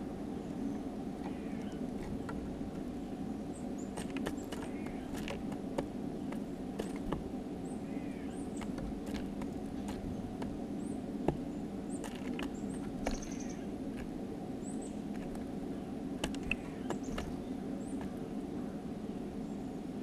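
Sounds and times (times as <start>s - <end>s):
low hum: 0.0s - 20.0s
songbirds chirping: 0.0s - 20.0s
beaks tapping on feeder: 3.8s - 7.3s, 11.2s - 13.6s, 16.2s - 18.2s.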